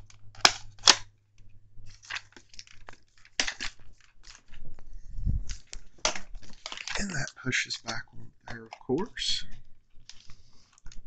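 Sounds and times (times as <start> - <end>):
hard plastic clicking and creaking: 5.5 - 11.0.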